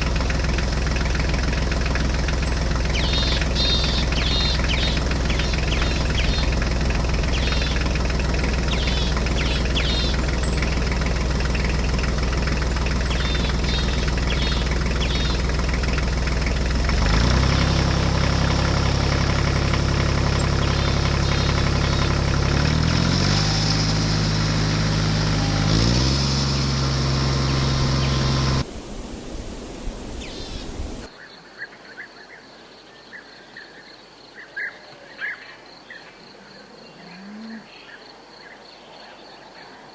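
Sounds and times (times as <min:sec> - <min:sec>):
birds chirping: 0:00.0 - 0:31.1
small tractor engine running: 0:00.0 - 0:31.1
insects: 0:01.8 - 0:16.0, 0:28.1 - 0:39.9.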